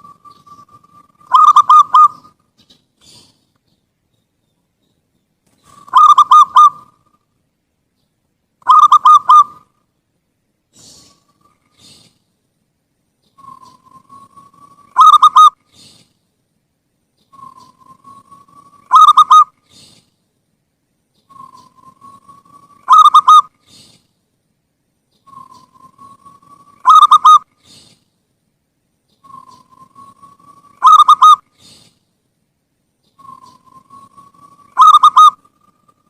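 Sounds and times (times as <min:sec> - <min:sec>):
dove cooing: 0:00.0 - 0:02.4, 0:05.6 - 0:07.2, 0:08.6 - 0:09.7, 0:13.3 - 0:16.0, 0:17.3 - 0:20.0, 0:21.3 - 0:24.0, 0:25.2 - 0:28.0, 0:29.2 - 0:31.9, 0:33.1 - 0:36.0.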